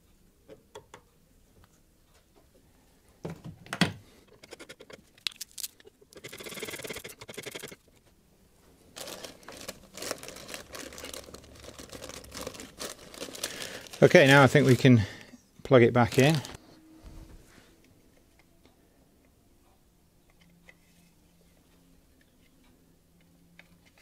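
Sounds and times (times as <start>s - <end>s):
plastic rustling and crinkling: 5.2s - 5.9s, 9.0s - 15.1s, 15.8s - 16.6s.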